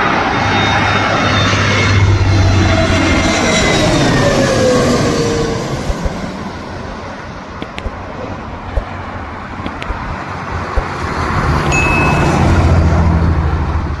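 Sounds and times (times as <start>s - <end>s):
jet engine roar: 0.0s - 14.0s.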